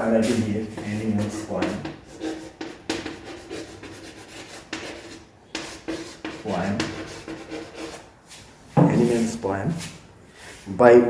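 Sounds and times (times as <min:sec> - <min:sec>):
pen scratching while writing: 0:00.7 - 0:08.0.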